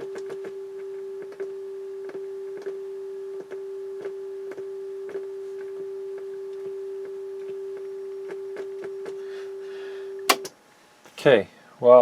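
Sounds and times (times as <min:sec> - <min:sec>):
switch crackles and clicks: 0:10.2 - 0:10.6.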